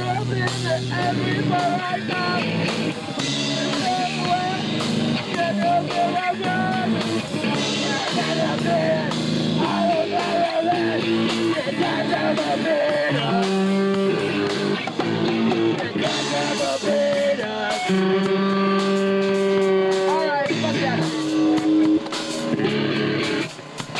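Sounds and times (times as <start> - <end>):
person singing: 0.0 - 2.5, 3.2 - 14.6, 15.6 - 21.8
distorted electric guitar: 0.0 - 23.9
drums with cymbal crashes: 0.0 - 23.9.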